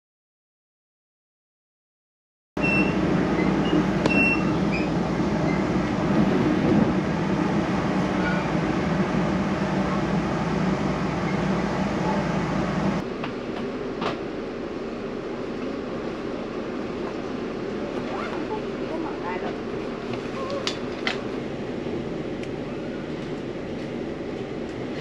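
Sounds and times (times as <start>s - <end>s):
train wheels rumbling: 2.6s - 14.3s.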